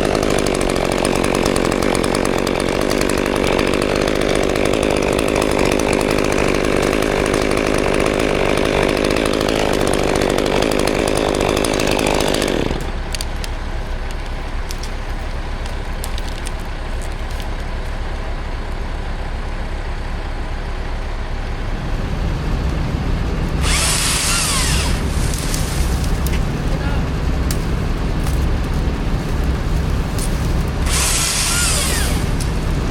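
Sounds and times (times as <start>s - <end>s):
chainsaw cutting wood: 0.0s - 18.3s, 21.0s - 32.9s
engine running low: 0.0s - 32.9s
loud high hissing: 30.1s - 32.4s.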